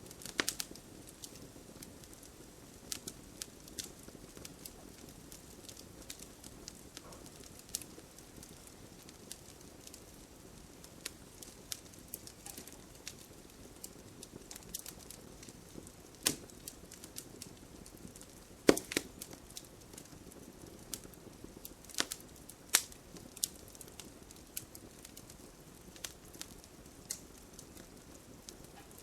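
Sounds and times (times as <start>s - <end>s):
campfire crackling: 0.0s - 29.0s
wood popping sharply: 18.7s - 19.2s.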